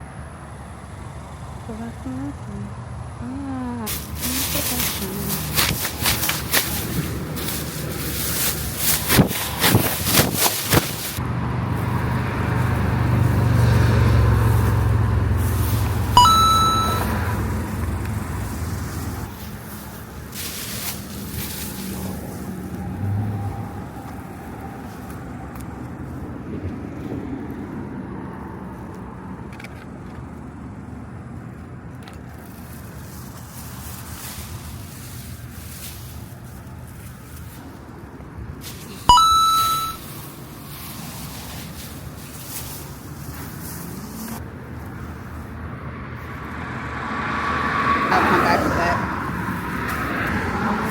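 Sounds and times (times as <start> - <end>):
low outdoor rumble: 0.0 - 50.9
vehicle engine passing: 0.0 - 50.9
short high beep: 16.1 - 17.2, 39.1 - 40.0.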